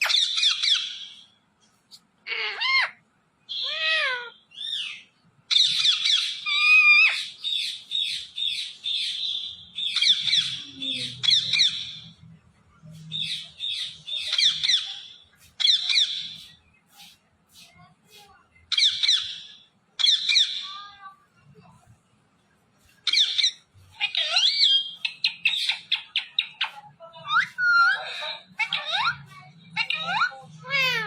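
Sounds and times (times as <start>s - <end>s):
parrot whistling and squawking: 0.0s - 1.2s, 2.3s - 12.0s, 13.3s - 16.4s, 23.1s - 31.0s.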